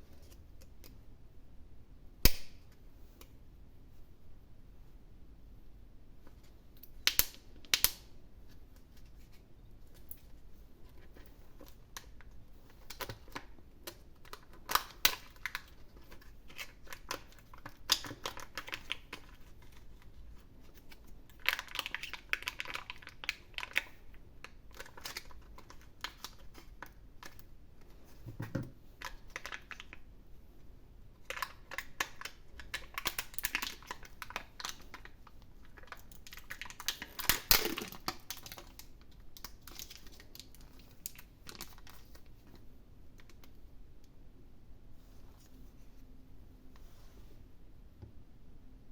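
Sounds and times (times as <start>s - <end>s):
wrapper crinkling: 11.0s - 27.5s, 29.0s - 30.0s, 31.2s - 42.6s
plastic and foil clicks: 11.5s - 20.1s, 20.8s - 27.5s, 29.0s - 30.0s, 31.2s - 42.3s.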